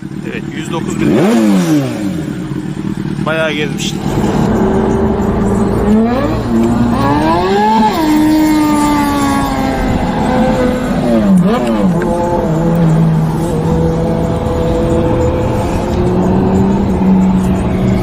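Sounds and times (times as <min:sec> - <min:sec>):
motorcycle engine revving: 0:00.0 - 0:18.0
rushing noise: 0:03.3 - 0:11.6.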